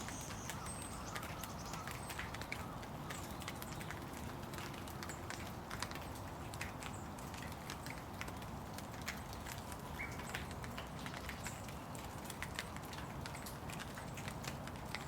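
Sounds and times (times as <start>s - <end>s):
raindrops tapping on surfaces: 0.0s - 15.0s
steady rain: 0.0s - 15.0s.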